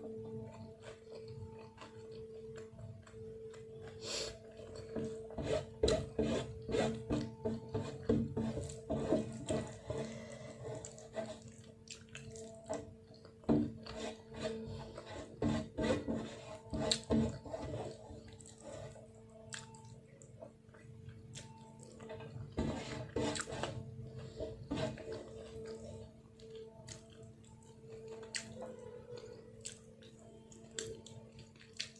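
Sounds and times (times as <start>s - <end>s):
faint steady hum: 0.0s - 31.9s
wet chewing: 0.4s - 5.3s, 8.6s - 14.3s, 16.9s - 22.5s, 24.9s - 31.9s.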